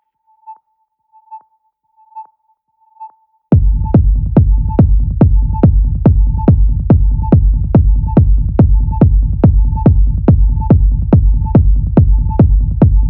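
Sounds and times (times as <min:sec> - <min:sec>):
electronic dance music: 0:03.5 - 0:13.0
heavy bass: 0:03.5 - 0:13.0
kick drum: 0:03.5 - 0:13.0.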